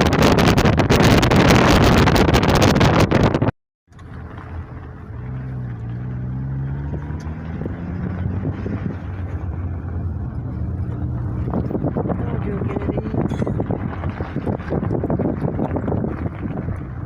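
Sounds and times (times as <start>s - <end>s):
wind buffeting microphone: 0.0s - 3.5s, 4.4s - 17.0s
low motor hum: 3.9s - 17.0s.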